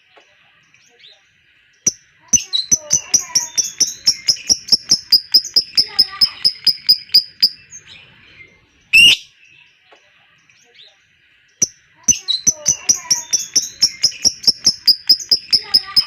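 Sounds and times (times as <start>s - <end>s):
bird chattering trill: 1.9s - 7.9s, 9.0s - 9.3s, 11.6s - 16.0s
bird harsh squawk: 2.7s - 7.6s, 8.9s - 9.3s, 12.2s - 16.0s.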